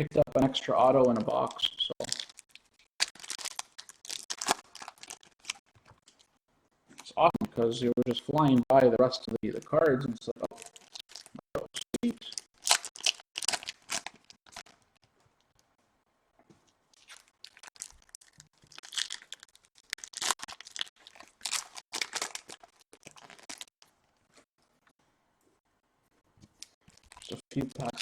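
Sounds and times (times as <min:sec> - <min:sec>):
foil packs tearing and crinkling: 0:02.0 - 0:05.7, 0:12.6 - 0:14.7, 0:17.0 - 0:23.8.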